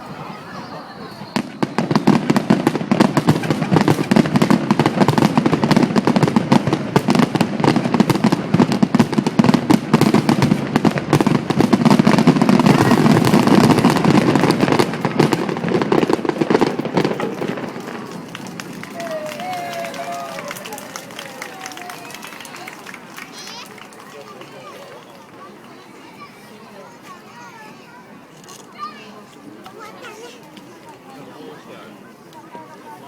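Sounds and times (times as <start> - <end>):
fireworks bursting and crackling: 0.0 - 25.5.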